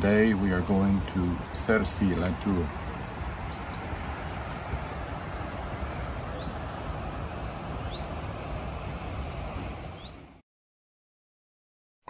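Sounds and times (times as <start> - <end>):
outdoor background rush: 0.0 - 10.4
small bird whistling call: 7.5 - 8.1.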